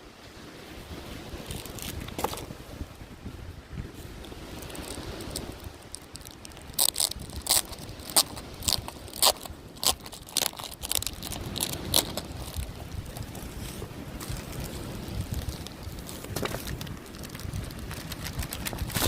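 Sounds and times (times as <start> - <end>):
wind on microphone: 0.0 - 19.0
plastic packaging crinkling and tearing: 1.4 - 2.4, 4.3 - 19.0.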